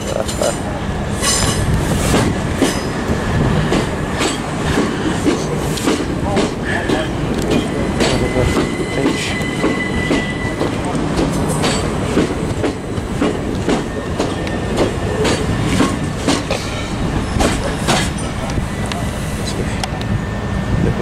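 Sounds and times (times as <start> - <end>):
wheels clacking over rail joints: 0.0 - 20.1
electric train pulling out: 0.0 - 21.0
high wheel squeal: 7.5 - 11.9.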